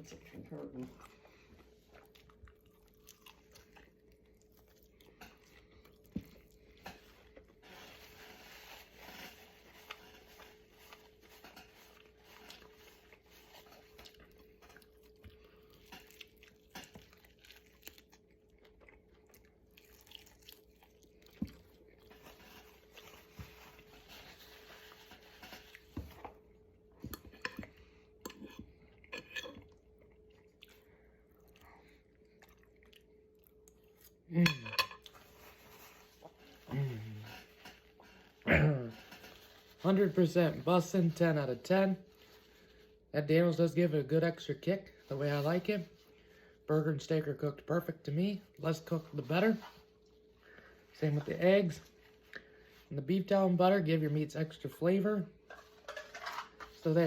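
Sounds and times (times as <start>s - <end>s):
faint steady hum: 0.0s - 57.0s
person chewing and crunching: 0.1s - 39.8s.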